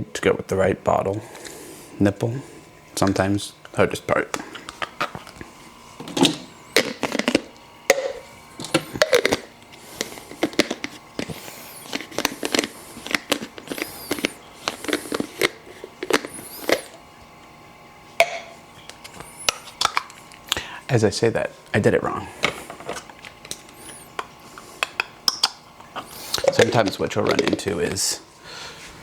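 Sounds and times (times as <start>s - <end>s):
plastic rubbing scrapes: 8.7s - 17.0s.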